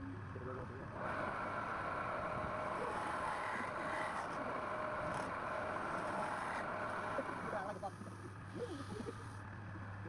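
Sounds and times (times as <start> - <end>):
wood lathe motor whine: 1.0 - 7.9.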